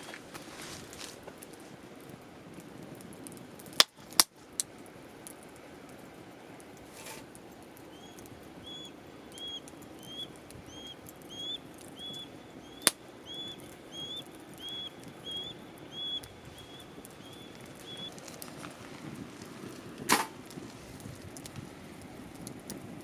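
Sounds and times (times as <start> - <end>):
fire popping: 0.0 - 23.0
wood fire crackling: 0.0 - 23.0
high chirp: 7.9 - 18.2.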